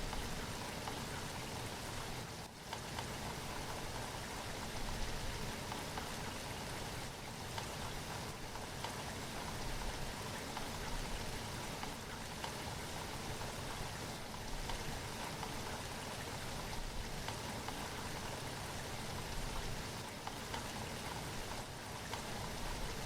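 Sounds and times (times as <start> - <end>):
steady rain: 0.0 - 23.0.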